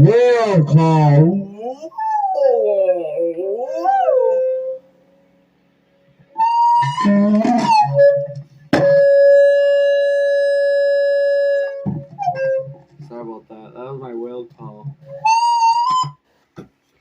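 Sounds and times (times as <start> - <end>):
man doing whale call into microphone: 0.0 - 4.8, 6.4 - 12.8
long steady held tone: 2.6 - 12.8.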